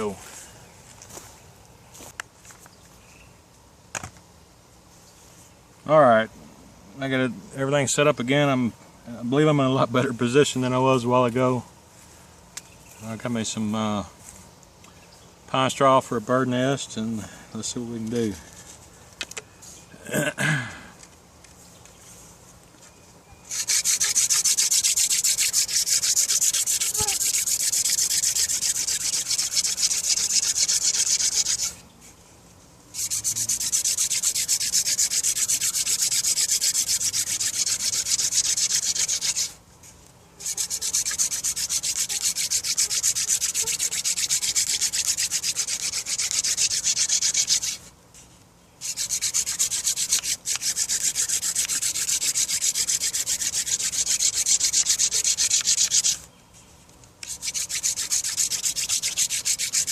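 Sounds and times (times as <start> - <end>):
wooden spindle scraping on board: 23.5 - 31.8, 33.0 - 39.6, 40.4 - 47.8, 48.8 - 56.2, 57.2 - 59.9.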